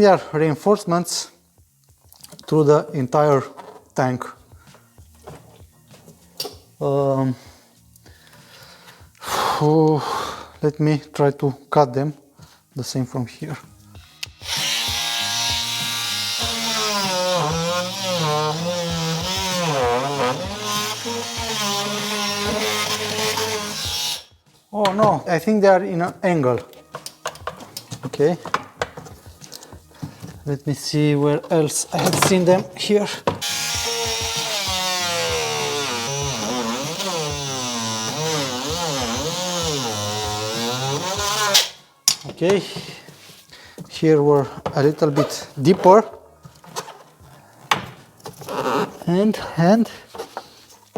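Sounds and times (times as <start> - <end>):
oscillating multi-tool cutting plastic: 14.2 - 24.3, 33.4 - 41.8.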